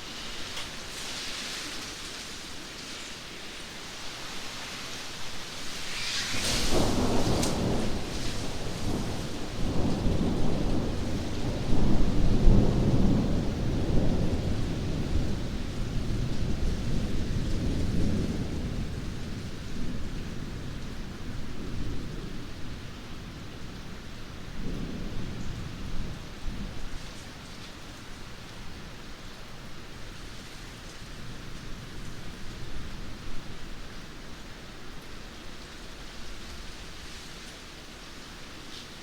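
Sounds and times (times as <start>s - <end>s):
steady rain: 0.0s - 39.0s
thunder rumbling: 6.2s - 22.6s.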